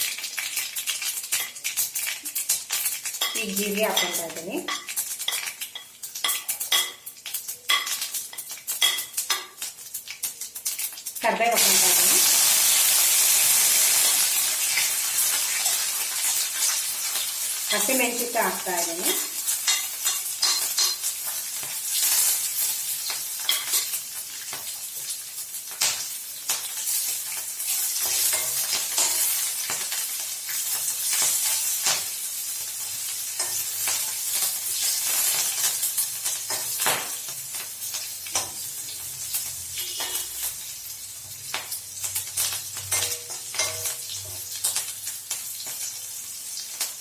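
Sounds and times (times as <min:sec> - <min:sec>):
stirring clicks and scrapes in pan: 0:00.0 - 0:11.2, 0:19.1 - 0:25.1, 0:25.7 - 0:32.1
hot oil sizzling: 0:00.0 - 0:47.0.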